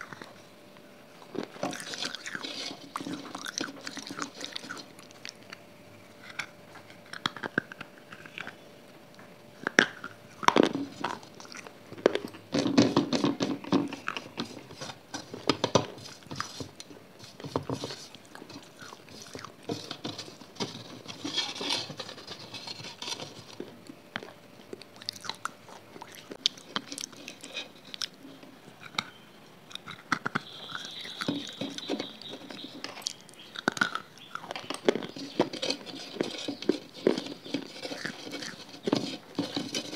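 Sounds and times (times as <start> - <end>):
wet chewing and biting: 1.2 - 5.6, 6.2 - 8.6, 9.6 - 12.4, 18.0 - 19.7, 23.8 - 39.9
mouth clicks: 28.8 - 35.0.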